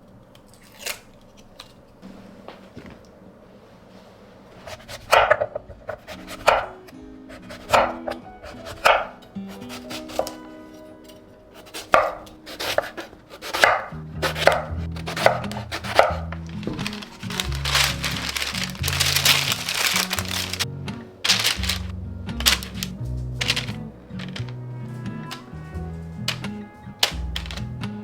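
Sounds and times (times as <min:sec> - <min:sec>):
soft background music: 0:04.6 - 0:28.0
knife chopping on cutting board: 0:04.7 - 0:06.8, 0:07.4 - 0:10.4, 0:11.6 - 0:16.8.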